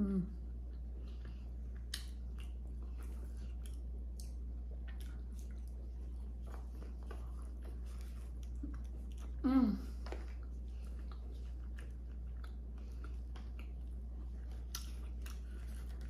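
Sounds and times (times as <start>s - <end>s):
steady low hum: 0.0s - 16.0s
wet chewing mouth smacks: 1.0s - 9.4s, 10.0s - 16.0s.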